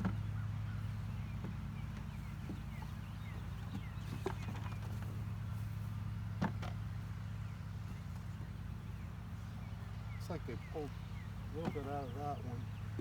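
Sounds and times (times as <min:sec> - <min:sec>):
honeybees humming: 0:07.2 - 0:13.0.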